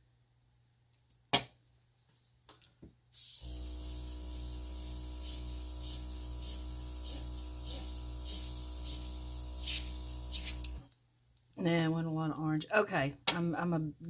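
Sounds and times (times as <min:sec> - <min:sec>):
airbrush air hiss: 0:03.2 - 0:10.8
airbrush compressor hum: 0:03.2 - 0:10.8.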